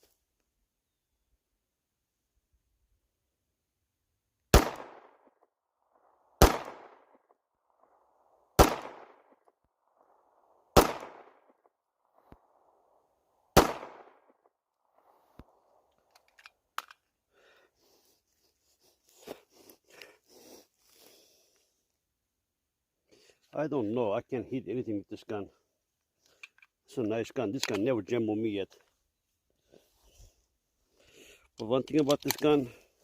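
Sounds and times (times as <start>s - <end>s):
pistol shots: 4.5s - 5.3s, 6.4s - 7.2s, 8.6s - 9.4s, 10.7s - 11.6s, 13.6s - 14.4s.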